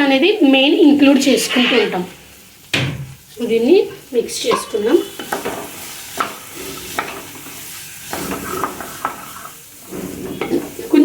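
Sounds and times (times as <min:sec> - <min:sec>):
food sizzling in hot oil: 0:00.0 - 0:11.0
utensil scraping a pan: 0:01.2 - 0:02.1, 0:04.4 - 0:11.0.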